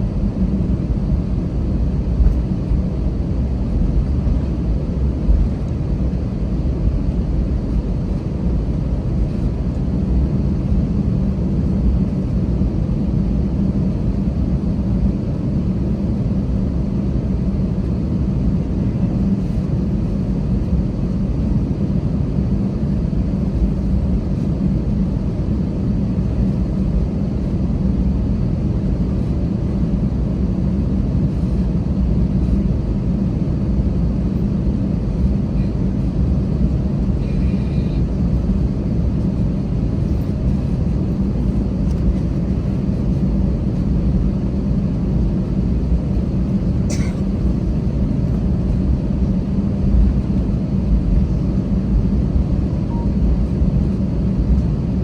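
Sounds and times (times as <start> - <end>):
airplane cabin engine rumble: 0.0 - 55.0.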